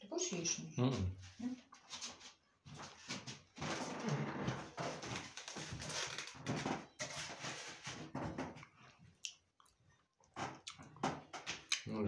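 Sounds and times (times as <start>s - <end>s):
man chewing with wet smacks: 8.6s - 12.0s.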